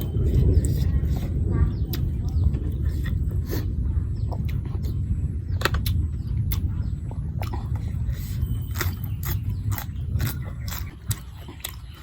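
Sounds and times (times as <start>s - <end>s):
steady low rumble: 0.0s - 12.0s
person chewing noodles: 5.8s - 12.0s.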